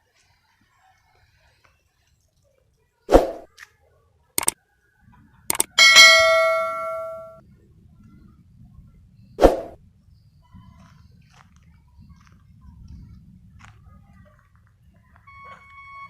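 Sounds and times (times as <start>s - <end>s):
hard object clanging: 5.5s - 7.4s
knocks and clicks: 5.5s - 7.4s.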